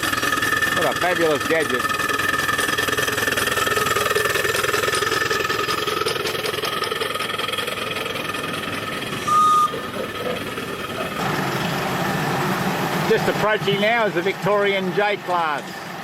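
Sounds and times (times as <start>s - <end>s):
engine running: 0.0s - 16.0s
short high whistle toot: 9.2s - 9.7s.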